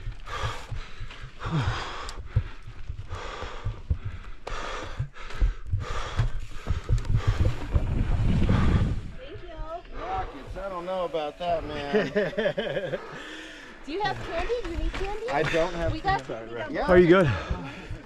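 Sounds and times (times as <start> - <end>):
person breathing hard: 0.0 - 9.2, 12.6 - 16.0, 17.1 - 18.0
constant low rumble: 0.0 - 18.0.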